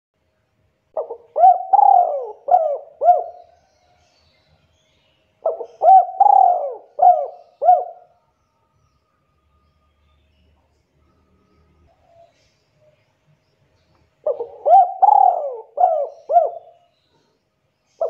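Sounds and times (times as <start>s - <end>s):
dove cooing: 1.0s - 3.6s, 5.4s - 8.1s, 14.2s - 16.9s.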